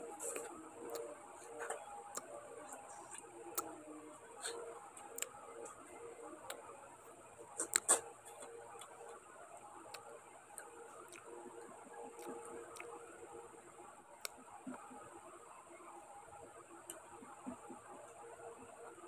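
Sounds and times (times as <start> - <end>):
wet chewing clicks and smacks: 5.0 - 5.4, 7.5 - 13.1.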